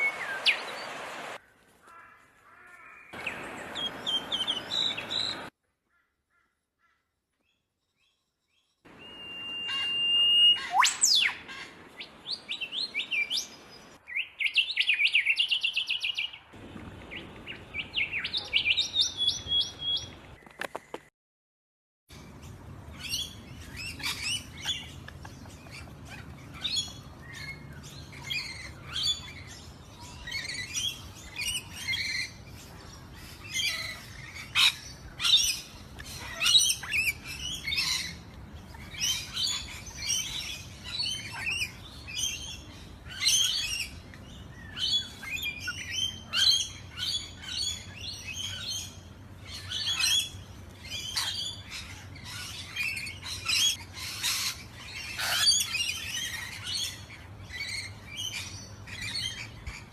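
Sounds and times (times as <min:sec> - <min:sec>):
birds chirping: 0:00.0 - 0:01.4, 0:02.5 - 0:05.5, 0:22.1 - 0:59.9.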